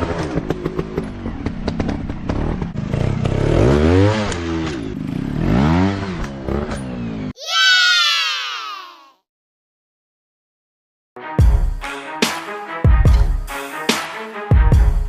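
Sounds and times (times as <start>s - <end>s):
dirt bike engines revving: 2.3s - 7.3s.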